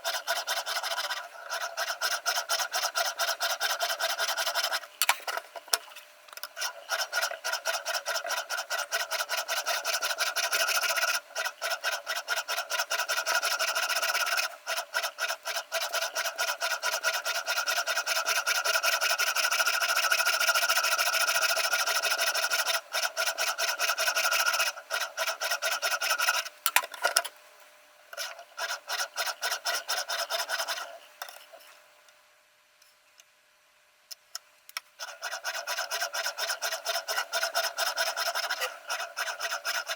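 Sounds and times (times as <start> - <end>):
sharpening stone rasping on knife: 35.0 - 39.9.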